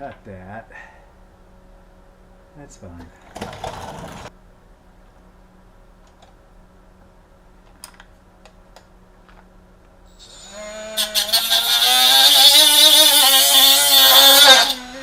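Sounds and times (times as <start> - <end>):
power tool motor whining: 10.1 - 15.0.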